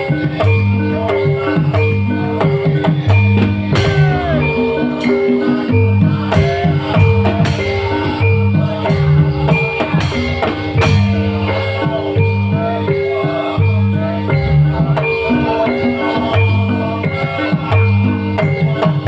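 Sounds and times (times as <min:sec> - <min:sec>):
live band music: 0:00.0 - 0:19.0.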